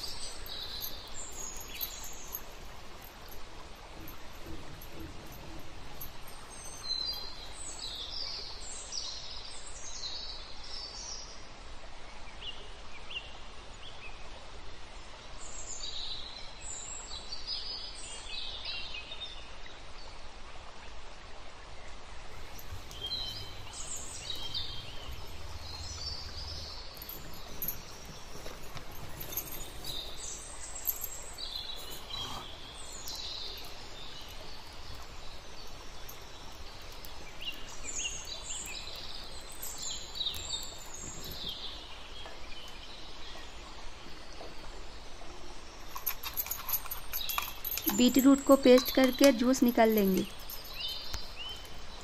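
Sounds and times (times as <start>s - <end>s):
birds chirping: 0.0s - 8.9s, 22.3s - 43.7s, 45.8s - 52.0s
outdoor background hiss: 0.0s - 52.0s.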